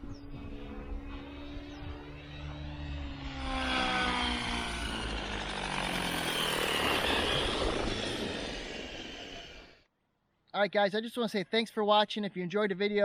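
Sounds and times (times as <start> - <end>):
model helicopter motor whine: 0.0 - 9.8
rushing rotor blade noise: 0.0 - 9.9.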